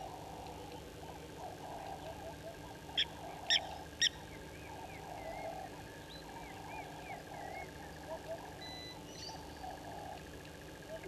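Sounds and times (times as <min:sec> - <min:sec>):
birds chattering: 0:00.0 - 0:11.0
faint warbling bird calls: 0:00.0 - 0:11.0.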